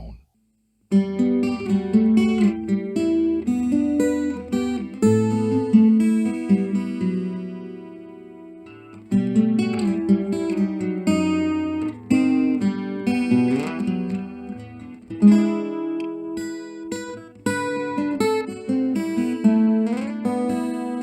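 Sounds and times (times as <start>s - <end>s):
amplified acoustic guitar: 0.9s - 21.0s.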